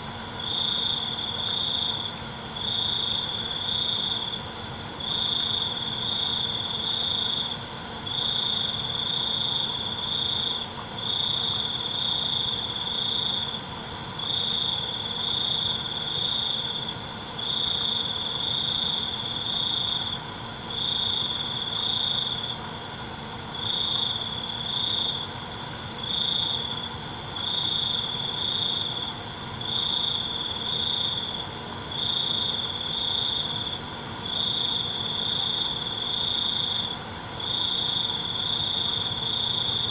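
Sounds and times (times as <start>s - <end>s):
high-pitched insect chorus: 0.0s - 39.9s
loud cricket trilling: 0.0s - 39.9s.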